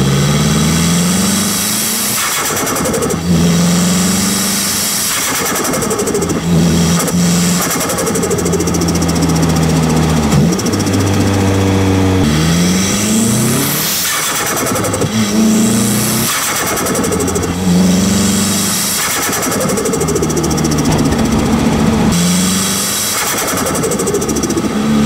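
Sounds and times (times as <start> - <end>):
turbocharged car engine running: 16.9 - 23.1.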